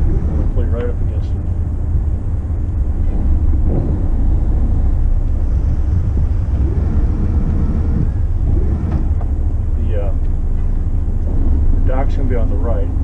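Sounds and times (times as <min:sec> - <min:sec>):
boat engine low rumble: 0:00.0 - 0:13.0.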